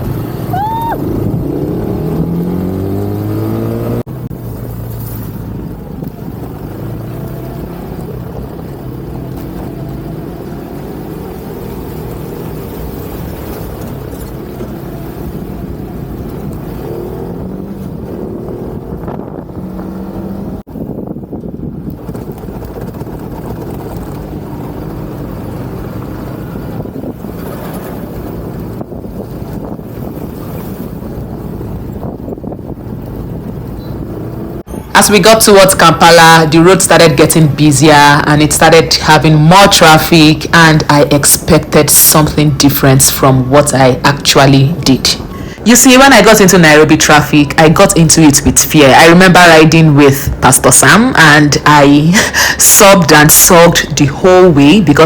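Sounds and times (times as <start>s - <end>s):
wind rushing over microphone: 0.0s - 46.0s
motorcycle engine running: 1.1s - 34.7s.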